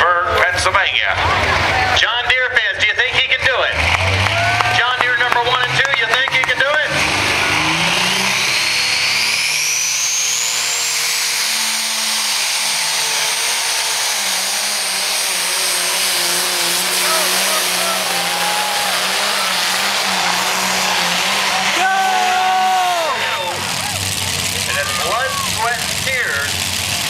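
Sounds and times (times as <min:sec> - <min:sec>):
tractor engine at full throttle: 0:00.0 - 0:27.0.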